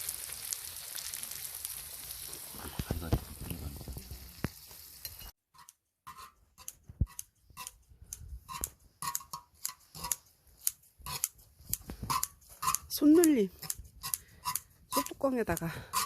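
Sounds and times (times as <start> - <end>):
utensils clicking on cast-iron lid: 5.0 - 7.8, 8.4 - 16.0.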